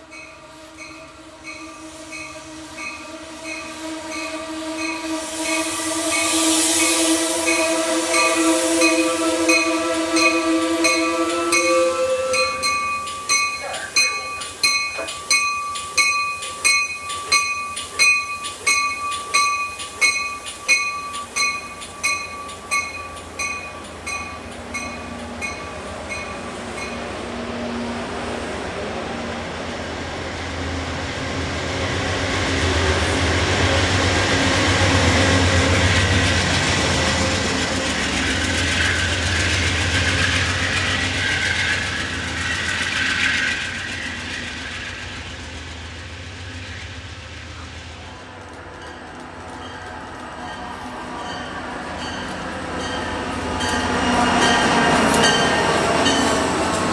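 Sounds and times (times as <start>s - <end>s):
locomotive drone: 0.0s - 56.9s
rail noise: 0.0s - 56.9s
bell ringing: 8.9s - 27.0s.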